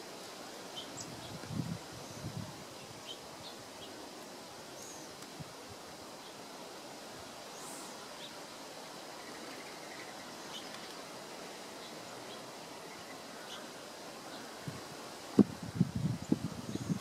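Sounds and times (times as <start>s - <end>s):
background hiss: 0.0s - 17.0s
faint bird chirps: 9.1s - 11.0s.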